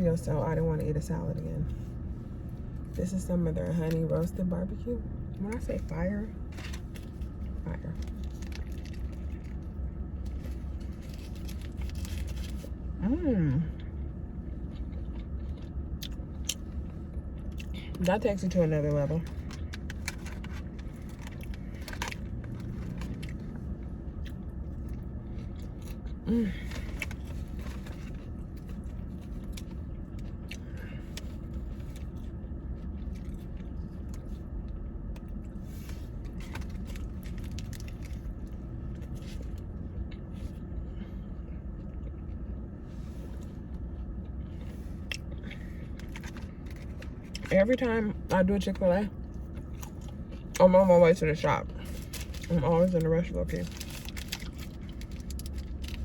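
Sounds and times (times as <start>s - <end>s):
steady low hum: 0.0s - 56.0s
person chewing food: 6.5s - 12.9s, 13.7s - 18.0s, 19.3s - 47.5s, 49.2s - 50.6s.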